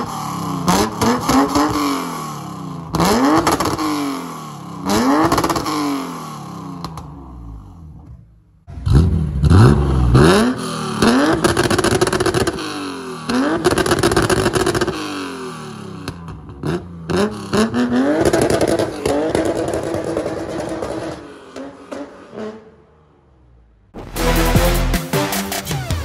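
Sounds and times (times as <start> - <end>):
car engine revving through exhaust: 0.0 - 6.3, 8.7 - 15.3.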